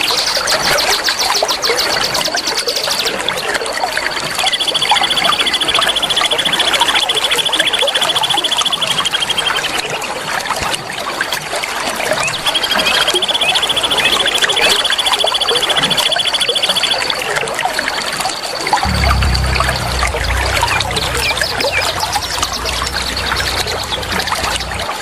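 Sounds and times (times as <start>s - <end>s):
songbirds chirping: 18.9s - 25.0s.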